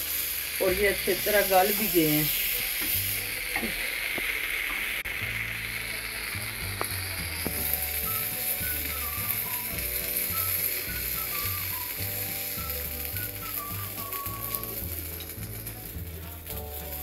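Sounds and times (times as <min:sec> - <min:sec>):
eggplant sizzling in oil: 0:00.0 - 0:17.0
soft background music: 0:05.0 - 0:17.0.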